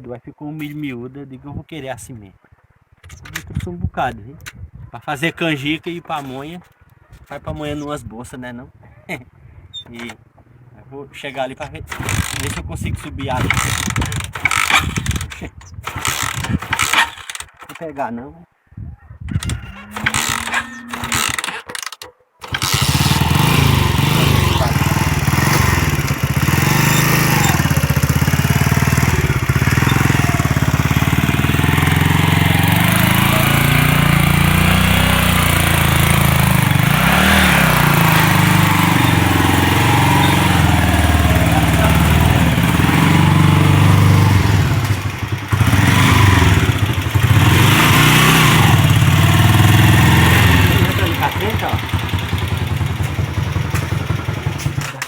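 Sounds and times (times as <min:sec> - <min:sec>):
engine starting and revving: 0:11.9 - 0:17.5, 0:19.4 - 0:55.0.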